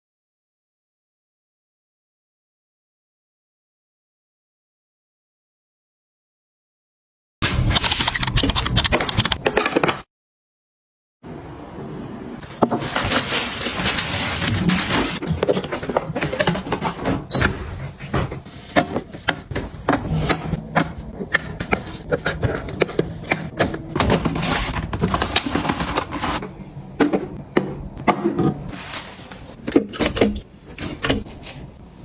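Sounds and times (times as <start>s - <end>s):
rustling: 12.4s - 17.0s
objects clicking and knocking: 12.4s - 31.6s.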